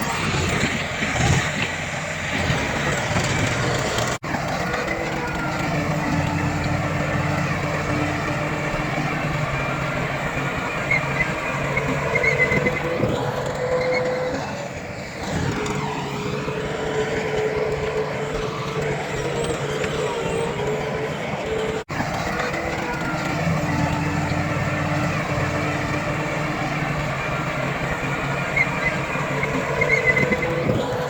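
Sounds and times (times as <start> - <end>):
heavy machine engines running: 0.0 - 31.0.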